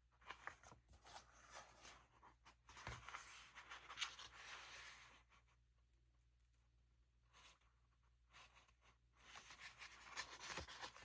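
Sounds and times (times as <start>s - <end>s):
paper rustling and rubbing: 8.3s - 11.0s.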